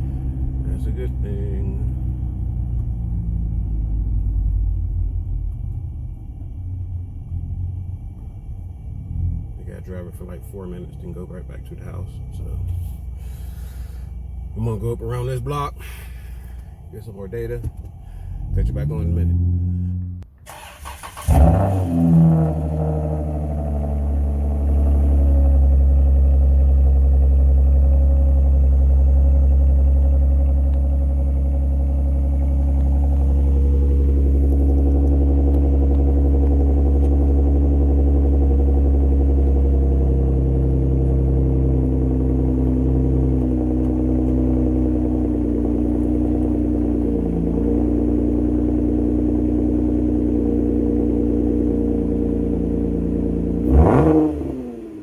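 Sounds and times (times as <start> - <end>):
car engine revving: 0.0 - 55.0
low engine drone: 0.0 - 55.0.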